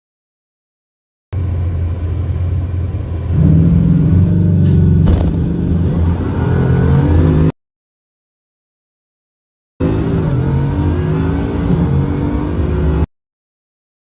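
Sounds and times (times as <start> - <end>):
car engine accelerating hard: 1.4 - 7.5, 9.8 - 13.1.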